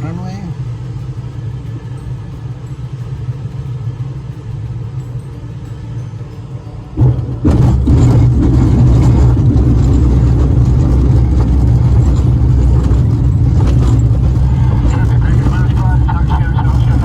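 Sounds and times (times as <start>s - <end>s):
wheel rumbling on runway: 6.4s - 17.0s.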